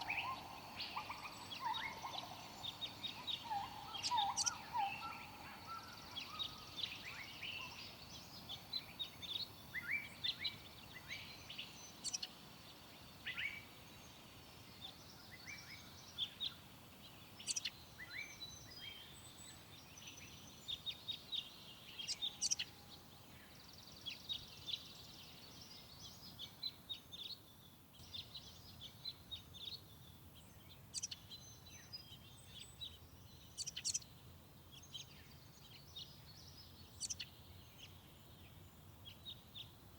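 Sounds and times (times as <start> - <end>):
faint background hiss: 0.0 - 39.9
songbirds chirping and singing: 0.0 - 39.9.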